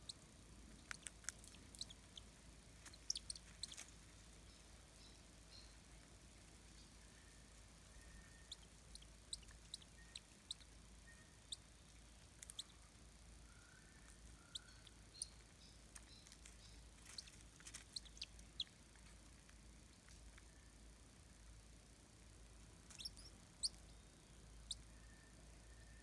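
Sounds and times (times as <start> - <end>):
low background rumble: 0.0 - 26.0
soft high chirps: 0.8 - 5.9, 6.7 - 18.9, 22.9 - 26.0.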